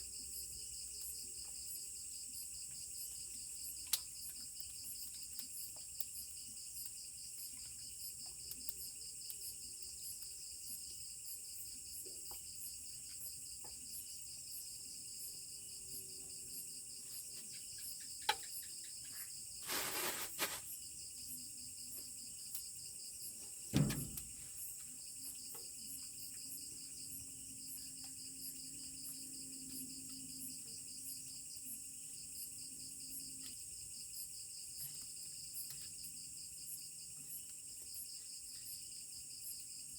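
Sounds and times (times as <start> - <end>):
insects trilling: 0.0 - 39.9
sharp knock: 23.7 - 24.3
loud thump: 23.7 - 24.4.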